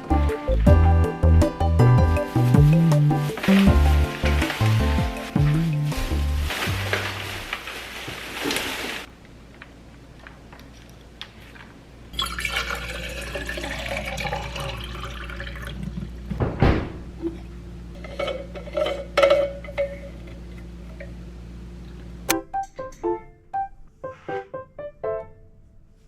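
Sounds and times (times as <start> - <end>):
water running into a sink: 12.2 - 16.1.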